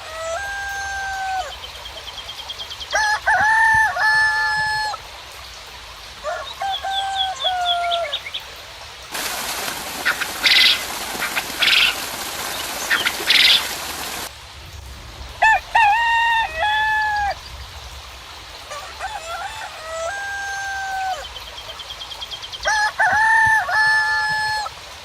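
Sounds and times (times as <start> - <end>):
roosters crowing: 0.0 - 1.6, 2.9 - 5.0, 6.2 - 8.2, 9.1 - 14.3, 15.4 - 17.4, 18.7 - 21.4, 22.6 - 24.7
rain hissing: 0.0 - 25.0
small birds chirping: 6.4 - 14.3, 21.0 - 22.7.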